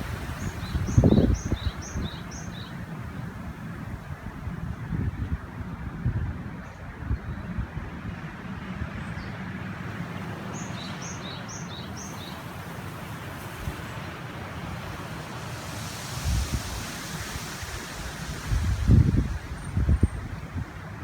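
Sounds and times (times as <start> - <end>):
river flowing: 0.0 - 3.8, 9.5 - 21.0
wind rumbling on microphone: 0.0 - 21.0.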